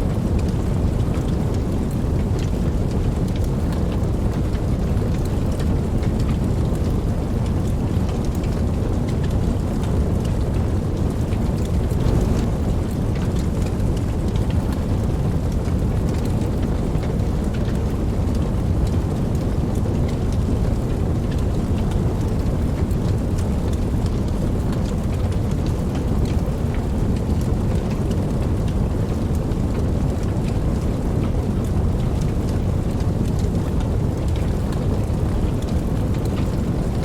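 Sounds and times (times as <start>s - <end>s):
steady rain falling: 0.0s - 37.0s
low rumble: 5.6s - 19.7s.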